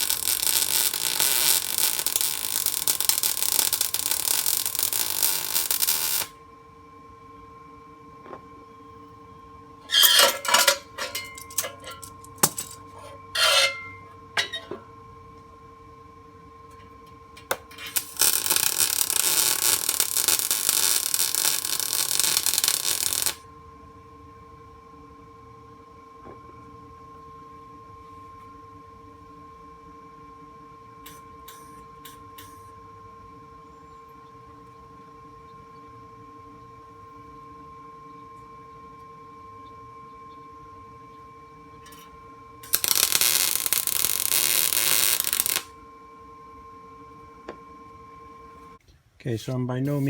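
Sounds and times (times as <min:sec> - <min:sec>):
welder arc on steel: 0:00.0 - 0:06.4, 0:09.8 - 0:14.8, 0:17.4 - 0:23.4, 0:31.1 - 0:32.7, 0:42.6 - 0:45.7.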